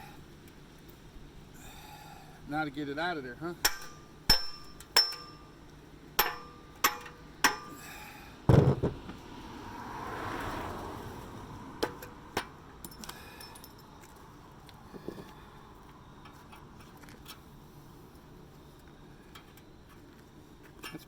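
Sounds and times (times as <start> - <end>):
hammer striking metal: 3.6 - 5.4, 6.2 - 7.8.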